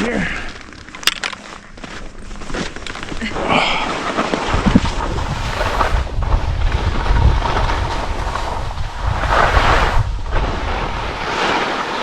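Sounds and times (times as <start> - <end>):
skis sliding on snow: 2.2 - 12.0
wind buffeting microphone: 4.4 - 11.3.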